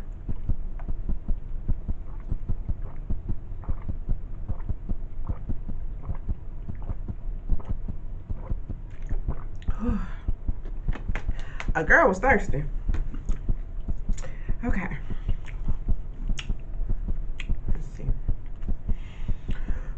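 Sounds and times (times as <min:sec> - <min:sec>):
electrical hum: 0:00.0 - 0:19.9
gulping and swallowing: 0:02.0 - 0:11.7
person exhaling: 0:09.7 - 0:10.3.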